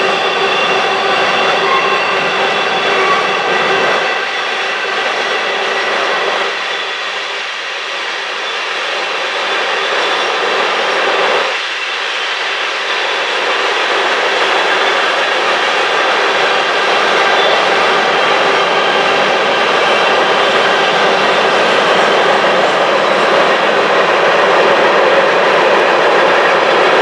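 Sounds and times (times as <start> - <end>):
steady ringing tones: 0.0 - 4.1
steel wheels rushing on rail: 0.0 - 27.0.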